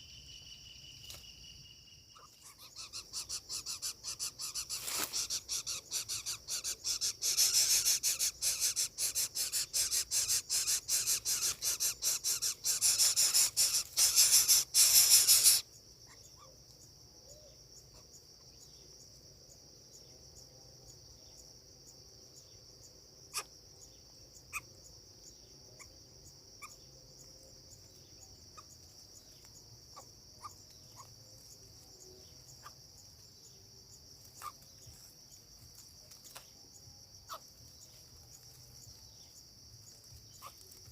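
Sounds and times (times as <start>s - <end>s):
high insect drone: 0.0s - 40.9s
nestling rasping begging buzz: 2.6s - 15.6s.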